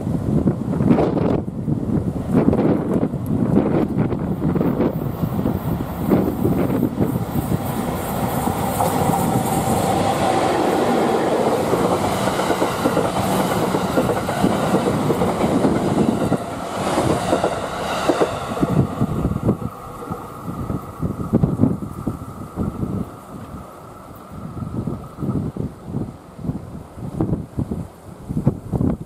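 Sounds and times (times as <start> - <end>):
train rolling over rail joints: 0.4 - 27.8.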